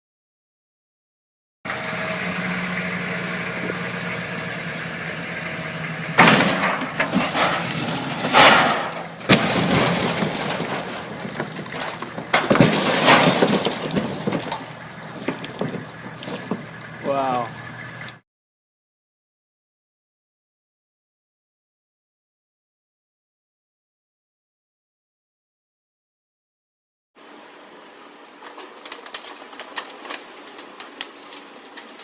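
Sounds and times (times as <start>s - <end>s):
boat engine running: 1.7s - 6.4s, 13.8s - 18.2s
loud crashes: 1.7s - 16.8s.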